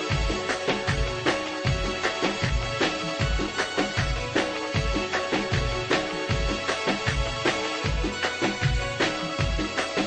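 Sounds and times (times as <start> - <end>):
electronic keyboard notes: 0.0 - 10.0.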